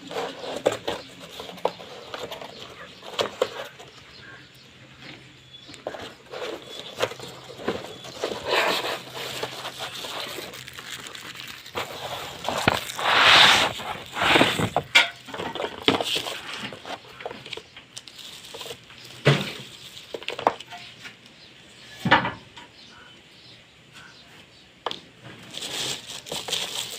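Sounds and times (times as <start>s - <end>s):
packaging crinkling: 5.9s - 20.7s, 25.4s - 26.9s.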